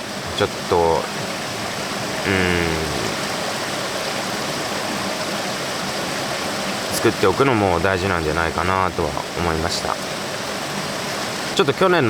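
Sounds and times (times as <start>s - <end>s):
man humming filler sound: 2.2s - 3.3s.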